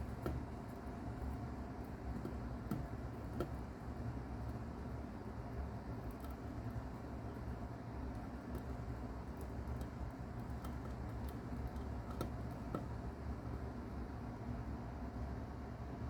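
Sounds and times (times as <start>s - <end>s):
mouse chewing insect shell: 0.0s - 13.9s
steady low hum: 0.0s - 16.0s.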